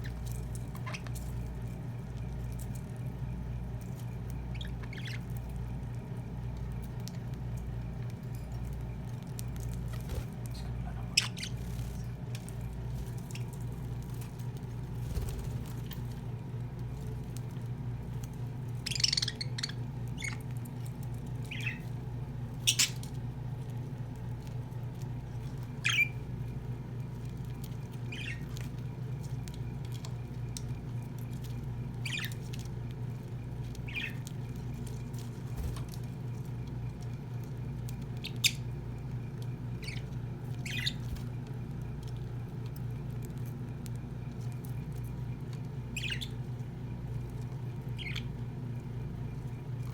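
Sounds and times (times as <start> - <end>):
budgerigars chirping: 4.5 - 5.2, 10.6 - 11.6, 18.8 - 20.4, 21.5 - 21.8, 25.8 - 26.2, 28.1 - 28.5, 32.0 - 32.4, 33.9 - 34.2, 39.8 - 41.0, 46.0 - 46.4, 48.0 - 48.3.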